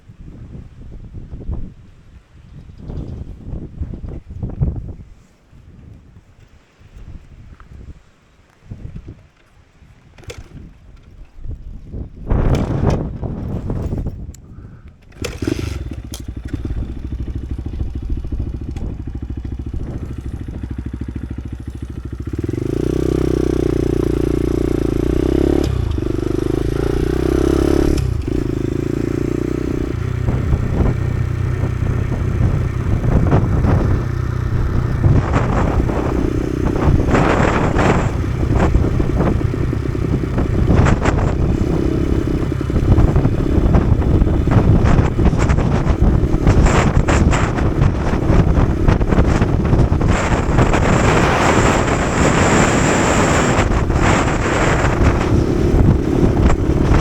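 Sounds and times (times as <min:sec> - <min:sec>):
small motorcycle engine running: 0:10.1 - 0:11.3, 0:15.0 - 0:57.0.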